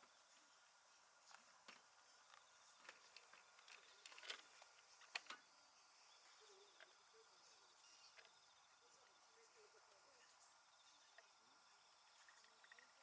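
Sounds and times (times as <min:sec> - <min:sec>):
faint clicks and taps: 0:01.2 - 0:05.4
faint high steady tone: 0:04.9 - 0:13.0.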